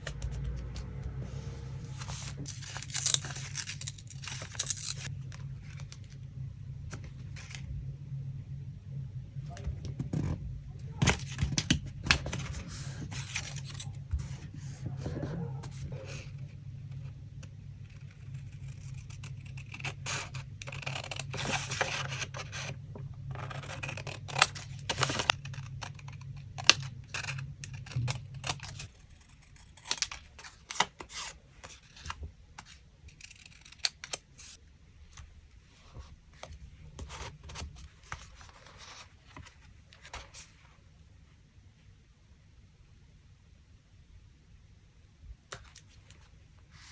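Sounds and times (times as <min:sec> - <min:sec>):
paper rustling: 0:00.0 - 0:06.0, 0:11.0 - 0:16.3
low background hum: 0:00.0 - 0:46.9
scissors cutting paper: 0:01.8 - 0:05.1, 0:17.9 - 0:22.7, 0:23.3 - 0:34.5.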